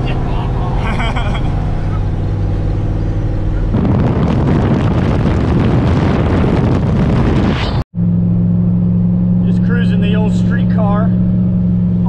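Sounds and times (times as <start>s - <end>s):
wind buffeting microphone: 0.0s - 7.8s
car engine: 0.0s - 12.0s
road noise: 0.0s - 12.0s.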